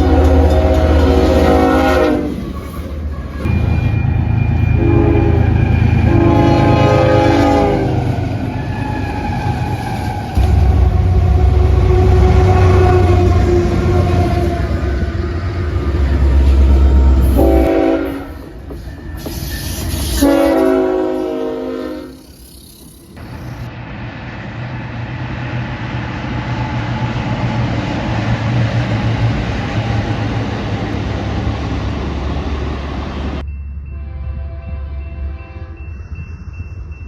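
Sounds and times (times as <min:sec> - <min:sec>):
train air horn: 0:00.0 - 0:22.5
train rumbling past: 0:00.0 - 0:37.0.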